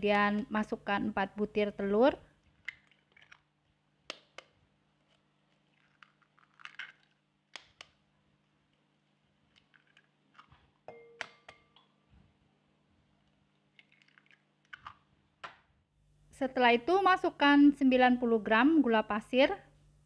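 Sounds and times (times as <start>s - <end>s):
eggshells cracking: 2.5s - 3.6s, 5.6s - 7.8s, 13.7s - 15.0s.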